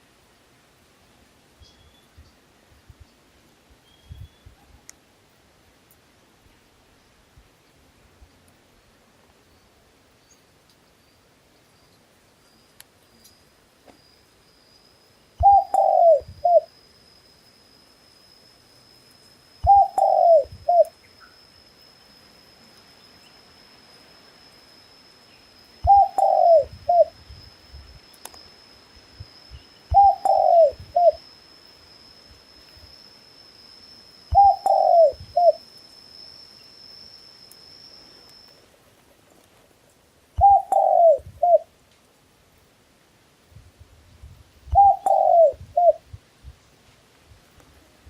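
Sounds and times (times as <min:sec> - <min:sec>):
faint high-pitched whine: 0:00.0 - 0:48.0
dove cooing: 0:15.4 - 0:16.7, 0:19.6 - 0:20.9, 0:25.8 - 0:27.2, 0:29.9 - 0:31.2, 0:34.3 - 0:35.6, 0:40.4 - 0:41.7, 0:44.7 - 0:46.0.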